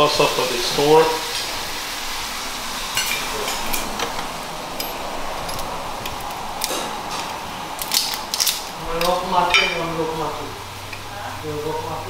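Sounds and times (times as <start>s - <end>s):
rice sizzling in a pot: 0.0s - 5.2s.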